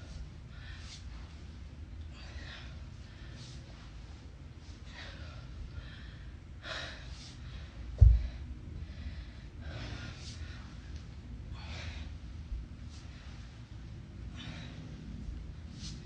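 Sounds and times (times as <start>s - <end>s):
person breathing hard: 0.0s - 16.0s
deep thump: 8.0s - 8.4s.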